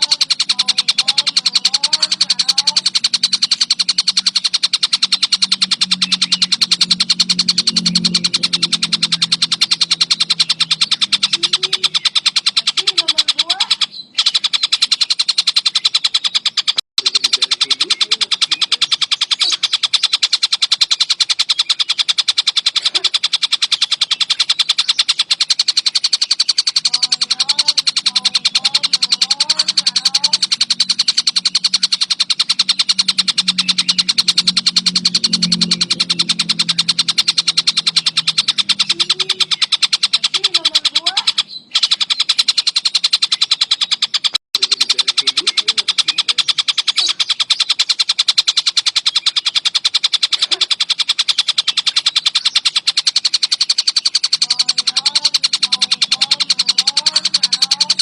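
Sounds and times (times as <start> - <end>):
songbird fast high-pitched trill: 0.0 - 58.0.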